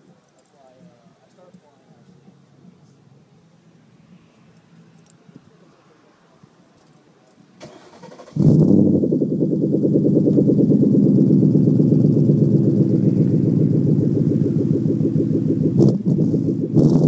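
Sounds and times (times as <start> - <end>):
car engine idling loudly: 8.4 - 17.0.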